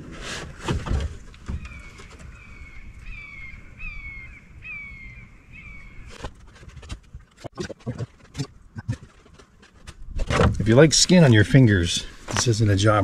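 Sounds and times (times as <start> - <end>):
bird calling: 1.4 - 6.7.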